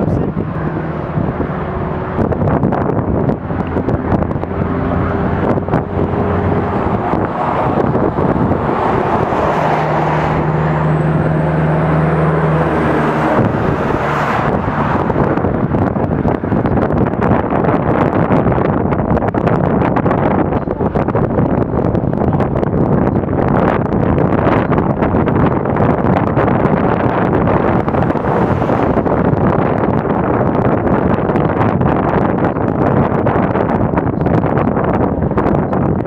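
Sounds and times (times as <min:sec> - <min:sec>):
road traffic passing: 0:00.0 - 0:36.0
strong engine hum: 0:00.0 - 0:36.0.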